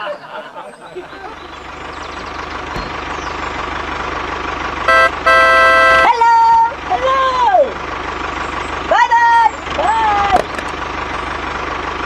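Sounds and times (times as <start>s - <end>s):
horn honking: 4.7s - 6.8s.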